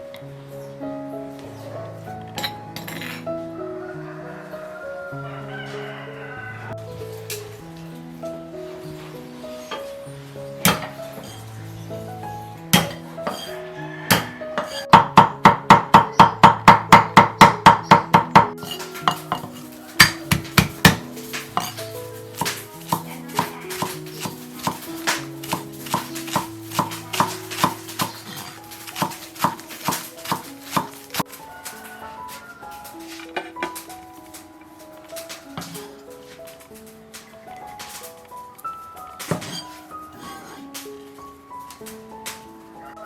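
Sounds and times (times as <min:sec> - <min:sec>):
background music: 0:00.0 - 0:43.0
knife chopping on cutting board: 0:22.4 - 0:31.2.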